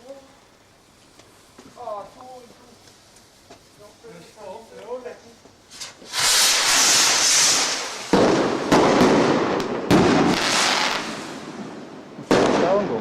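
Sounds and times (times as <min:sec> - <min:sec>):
firework bangs with crackling: 0:00.8 - 0:13.0
firework hissing rush: 0:05.6 - 0:12.9.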